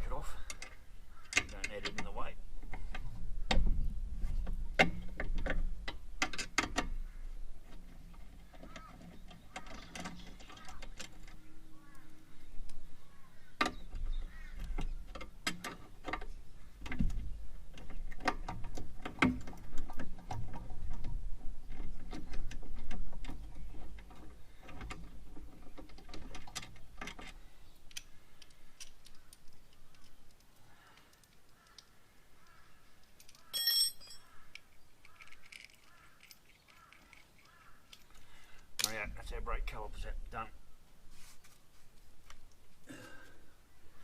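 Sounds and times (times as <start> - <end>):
hand tools clinking on metal: 33.4 - 34.4.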